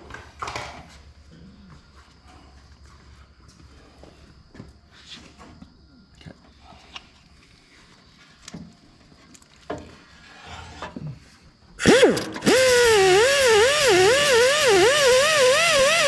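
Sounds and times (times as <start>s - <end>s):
angle grinder grinding metal: 11.8s - 16.0s.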